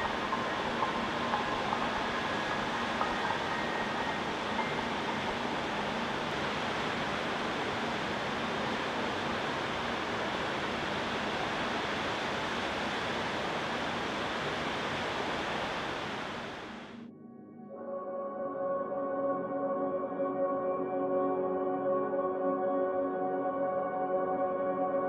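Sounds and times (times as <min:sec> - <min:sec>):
water rushing: 0:00.0 - 0:16.9
ambient music with held tones: 0:00.0 - 0:25.0.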